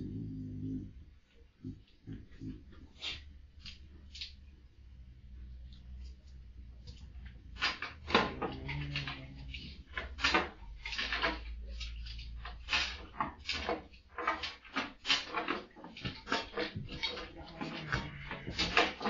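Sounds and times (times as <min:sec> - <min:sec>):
dog moaning low: 0:00.0 - 0:02.7, 0:08.1 - 0:09.9, 0:17.2 - 0:18.9
dog scratching at bedding: 0:07.0 - 0:19.0.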